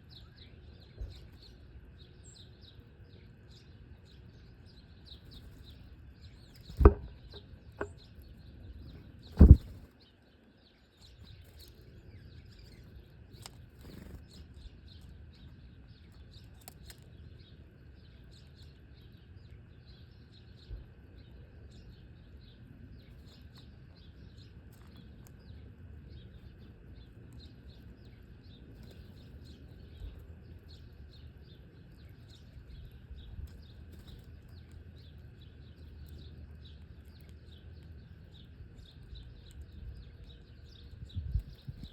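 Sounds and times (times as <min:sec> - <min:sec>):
small birds chirping: 0:00.0 - 0:41.9
loud knocks: 0:06.8 - 0:07.9.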